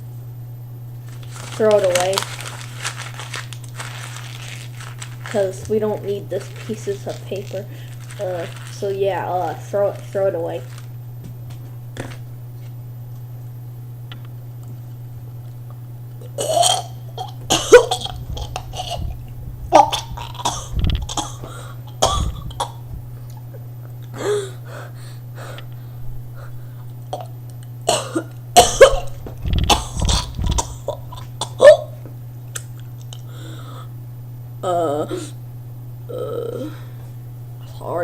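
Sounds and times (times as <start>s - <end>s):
person coughing: 16.2s - 23.5s, 27.1s - 32.0s
low thumps: 17.4s - 23.5s, 28.6s - 31.4s.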